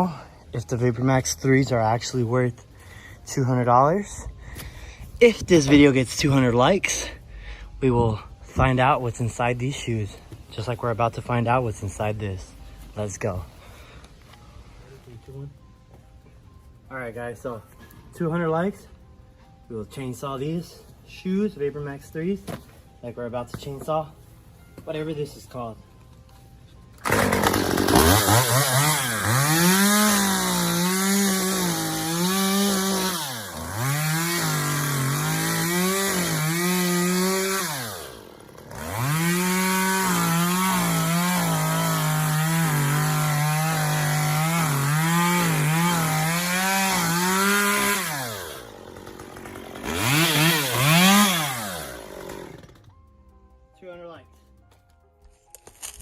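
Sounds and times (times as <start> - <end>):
chainsaw engine revving: 27.0 - 52.9.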